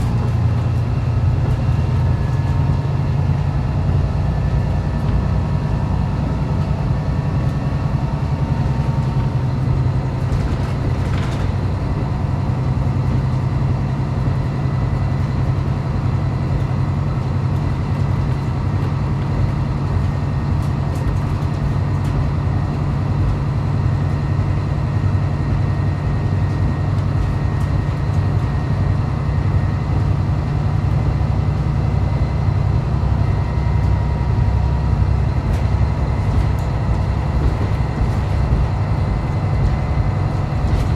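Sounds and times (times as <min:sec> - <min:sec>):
railcar engine drone: 0:00.0 - 0:40.9
wheels rolling on rails: 0:08.9 - 0:24.6, 0:34.5 - 0:40.9.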